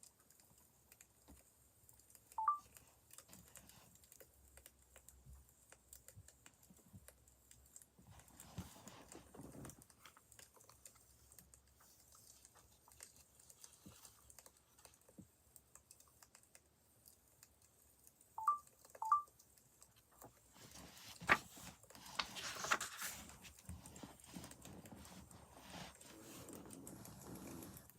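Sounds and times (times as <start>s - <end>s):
short electronic beeps: 2.4s - 2.6s, 18.4s - 19.3s.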